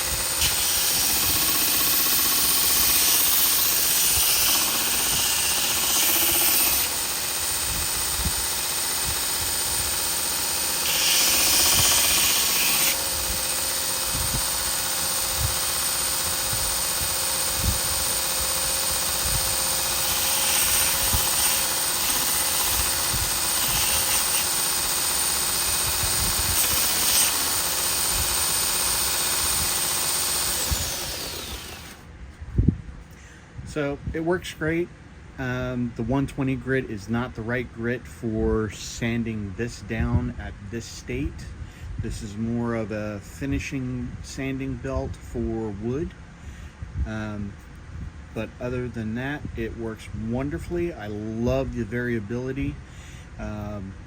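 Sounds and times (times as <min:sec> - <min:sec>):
belt grinder sanding wood: 0:00.0 - 0:32.0.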